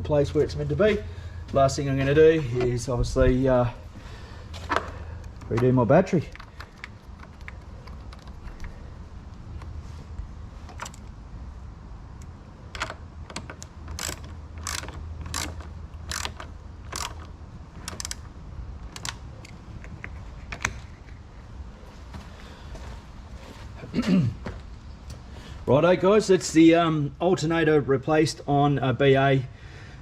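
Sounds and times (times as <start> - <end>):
ratchet wrench clicking: 12.8 - 18.3, 18.9 - 19.2.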